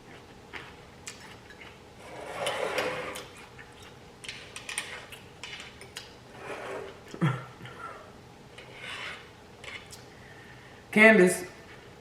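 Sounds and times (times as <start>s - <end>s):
wet chewing with mouth clicks: 0.0s - 1.8s.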